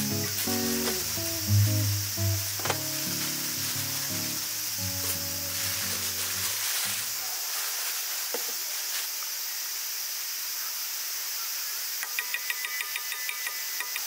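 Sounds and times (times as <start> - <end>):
soft background music: 0.0 - 6.9
food sizzling in frying: 0.0 - 9.4.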